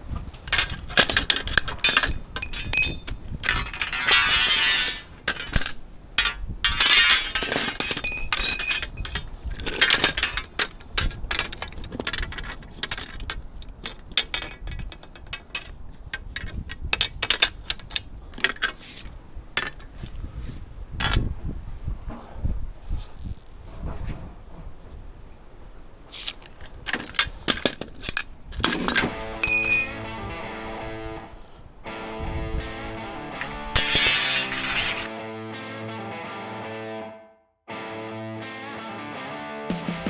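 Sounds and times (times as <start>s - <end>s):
metal tools and pipes clinking: 0.4s - 21.5s, 26.2s - 30.7s, 32.9s - 35.1s
rasping noises: 28.6s - 35.1s.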